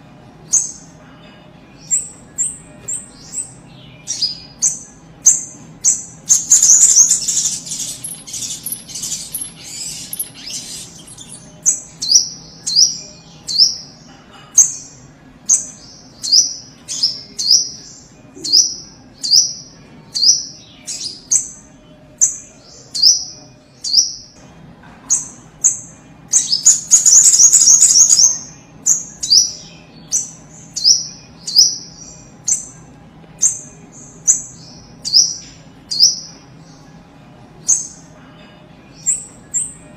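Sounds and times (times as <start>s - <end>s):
bird harsh chattering: 6.3s - 11.8s, 26.4s - 28.4s.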